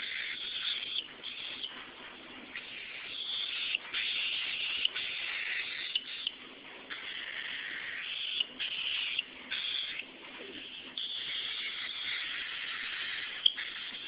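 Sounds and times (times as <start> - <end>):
sharp bird clicks: 11.0 - 14.0.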